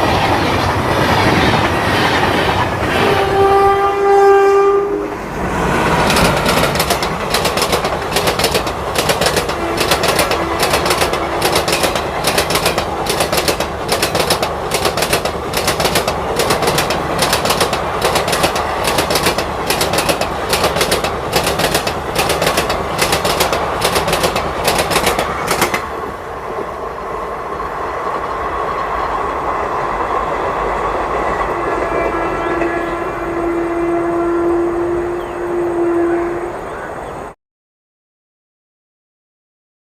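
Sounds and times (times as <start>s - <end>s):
train rumble: 0.0s - 37.4s
train horn: 2.8s - 5.3s, 9.5s - 11.6s, 31.5s - 37.0s
train wheels clattering: 5.8s - 26.2s.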